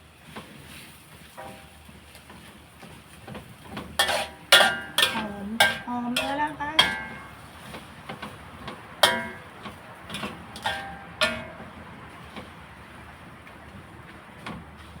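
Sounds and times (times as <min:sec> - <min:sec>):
metal spatula clanking on wok: 0:01.4 - 0:01.8, 0:03.7 - 0:12.4.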